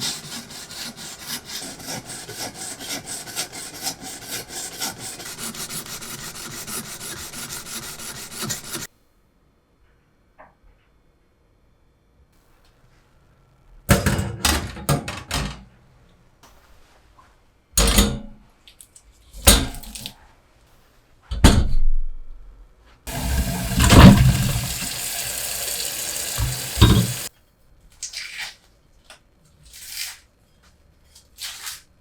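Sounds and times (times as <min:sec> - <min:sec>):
kitchen items clattering: 0:23.1 - 0:27.3
water running from a tap: 0:23.1 - 0:27.3.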